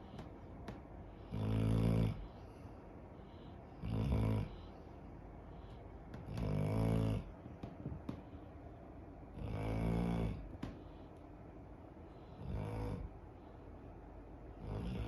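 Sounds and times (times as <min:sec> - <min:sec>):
dog snoring: 0:01.2 - 0:02.4, 0:03.8 - 0:04.7, 0:06.2 - 0:07.4, 0:09.4 - 0:10.5, 0:12.2 - 0:13.2, 0:14.6 - 0:15.0.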